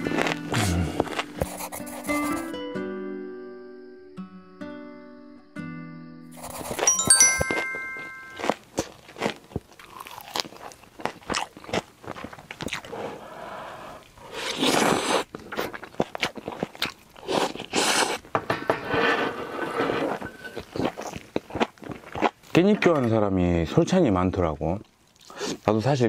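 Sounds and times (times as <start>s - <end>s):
wet mouth sounds: 0.0s - 1.8s
close chewing and crunching: 0.0s - 2.4s, 8.4s - 13.3s, 14.0s - 18.3s, 20.4s - 22.7s, 24.6s - 25.7s.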